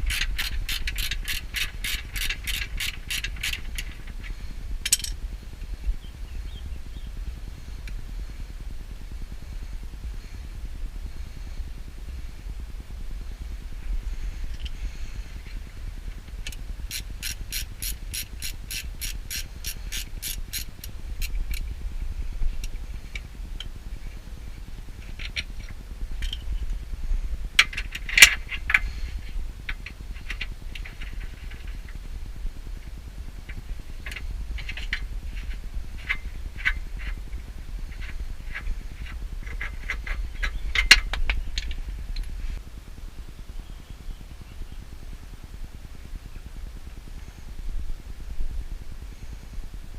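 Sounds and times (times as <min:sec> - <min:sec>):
ratchet wrench clicking: 0:00.0 - 0:05.2, 0:16.4 - 0:21.7.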